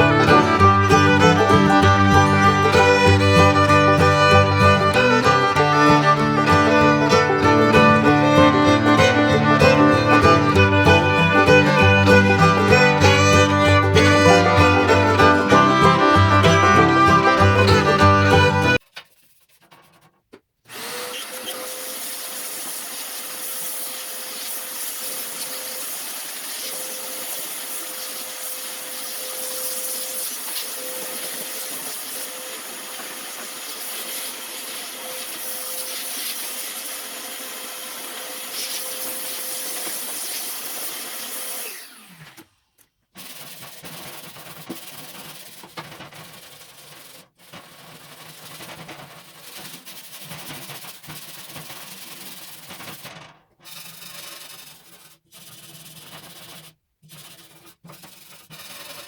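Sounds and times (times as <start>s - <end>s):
power tool whining: 0.0s - 18.8s, 20.7s - 42.7s.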